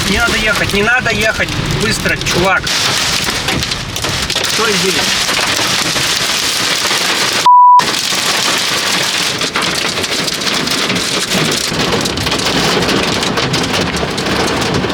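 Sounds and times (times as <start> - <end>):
heavy rain on a car: 0.0 - 14.9
censor bleep: 7.5 - 7.8.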